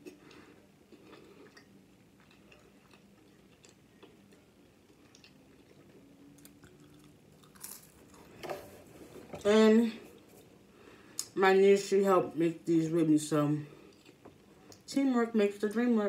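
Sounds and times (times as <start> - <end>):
chewing crunchy food: 0.0 - 8.4, 13.8 - 14.9
faint low hum: 0.0 - 16.0.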